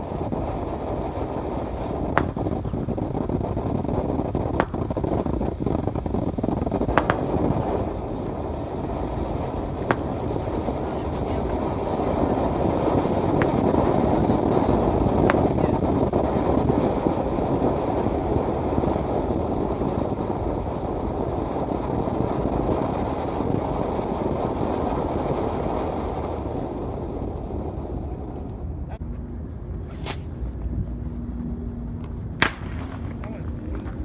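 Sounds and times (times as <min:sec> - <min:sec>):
wind buffeting microphone: 0:00.0 - 0:34.0
faint sharp pops: 0:02.1 - 0:03.0, 0:04.5 - 0:05.4, 0:06.8 - 0:08.3, 0:09.8 - 0:11.2, 0:32.4 - 0:34.0.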